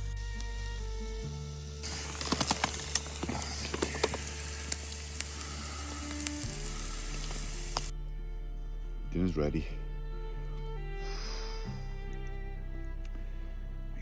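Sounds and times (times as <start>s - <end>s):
fat spitting pops: 1.8s - 7.9s
steak sizzling in a pan: 1.8s - 7.9s.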